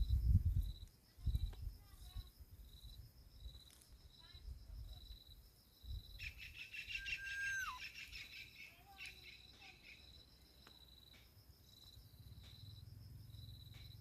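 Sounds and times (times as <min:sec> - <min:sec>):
birds chirping: 0:06.2 - 0:10.1.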